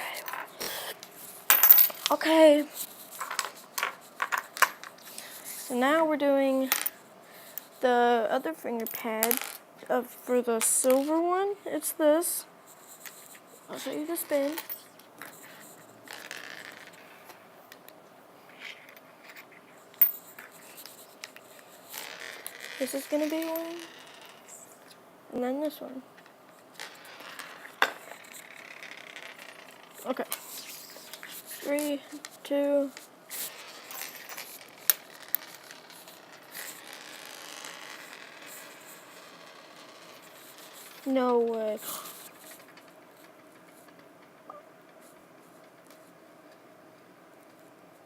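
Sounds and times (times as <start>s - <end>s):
fidget spinner scraping on table: 12.8s - 17.4s, 20.3s - 24.8s, 26.6s - 43.9s.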